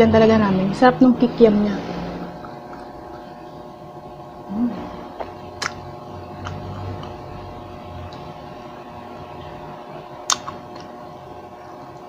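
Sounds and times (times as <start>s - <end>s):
steady hum: 0.0s - 12.0s
sharp mouth clicks: 5.6s - 5.8s, 10.2s - 10.9s
chewing fried food: 10.2s - 11.0s.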